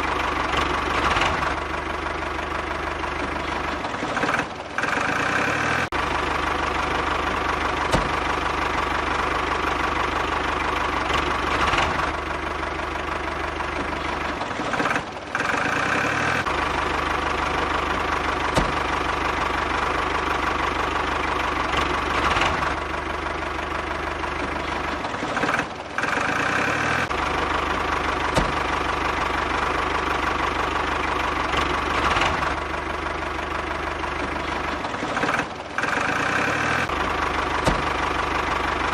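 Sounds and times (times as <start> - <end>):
engine-like running hum: 0.0 - 38.9.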